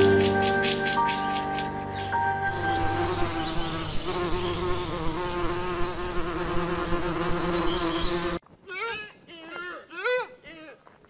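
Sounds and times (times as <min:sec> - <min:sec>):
bumblebee buzzing: 0:00.0 - 0:08.4.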